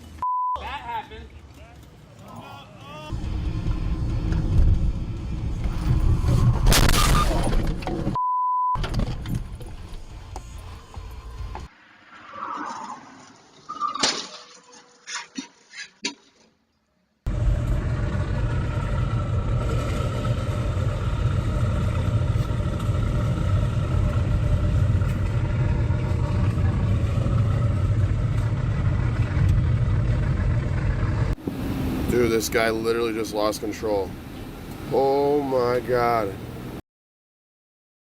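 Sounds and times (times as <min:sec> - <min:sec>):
car engine and tyres rumbling: 0:00.0 - 0:08.2, 0:08.8 - 0:14.6, 0:17.3 - 0:36.8.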